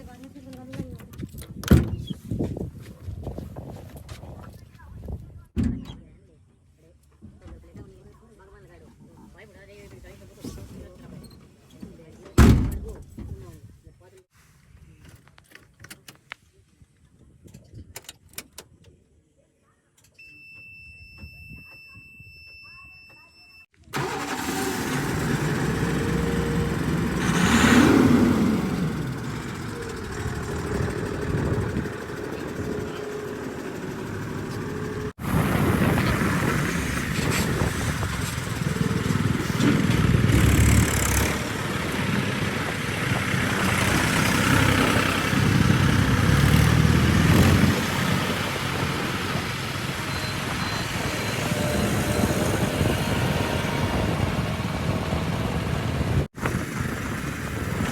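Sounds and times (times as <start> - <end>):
heavy diesel engines revving: 24.0 - 57.9.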